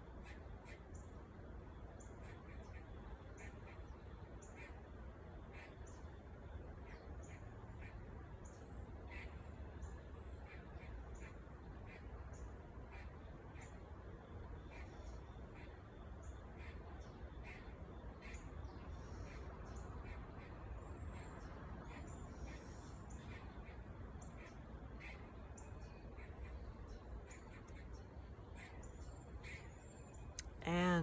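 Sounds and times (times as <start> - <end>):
crickets trilling: 0.2 - 31.0.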